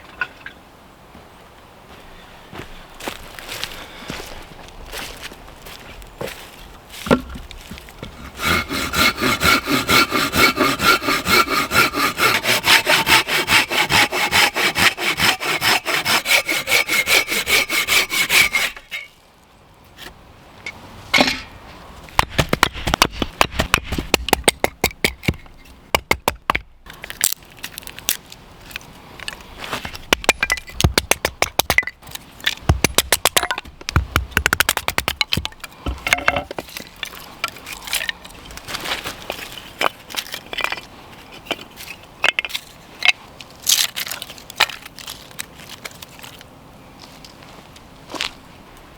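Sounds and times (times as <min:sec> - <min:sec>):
firewood cracking and knocking: 0:07.0 - 0:08.2, 0:22.1 - 0:40.9
hand saw cutting wood: 0:08.0 - 0:19.1.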